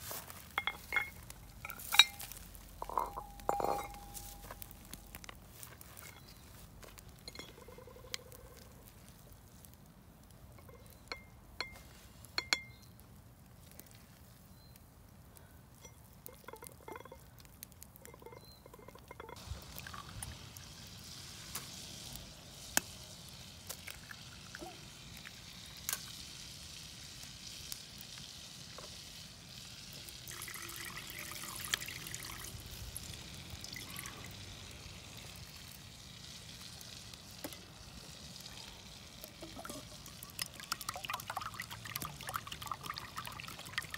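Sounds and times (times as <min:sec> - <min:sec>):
food sizzling: 0:00.0 - 0:09.1, 0:16.2 - 0:43.9
metal utensils clinking on pan: 0:00.5 - 0:04.7, 0:07.2 - 0:07.9.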